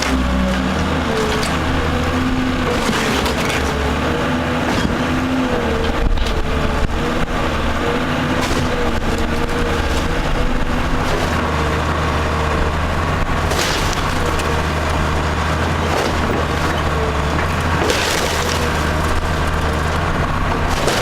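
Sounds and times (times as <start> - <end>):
breaking timber cracks: 0.0 - 4.0, 8.2 - 11.5, 13.2 - 21.0
heavy machine engine under load: 0.0 - 21.0.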